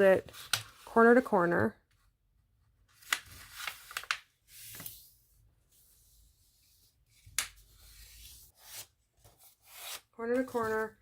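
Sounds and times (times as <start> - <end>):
paper rustling and crinkling: 2.9 - 5.1.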